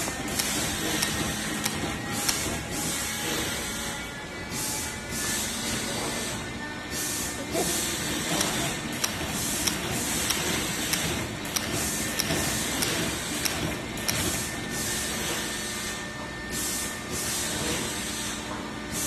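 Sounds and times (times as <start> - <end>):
steady machine noise: 0.0 - 19.0
sharp mechanical clicks: 0.1 - 2.7, 8.2 - 14.5
air hissing: 4.5 - 19.0.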